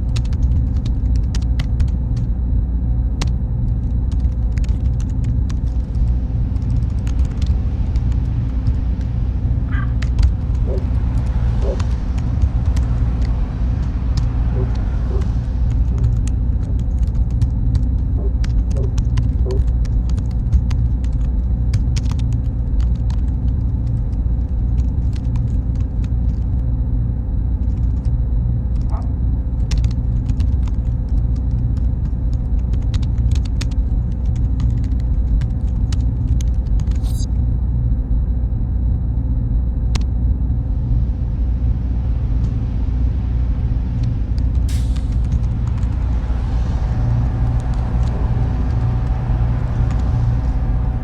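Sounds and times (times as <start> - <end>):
small clicks and ticks: 0.0 - 2.3, 3.2 - 26.6, 27.6 - 37.1
machinery rumbling: 0.0 - 37.4, 38.4 - 51.0
faint high hum: 0.0 - 51.0.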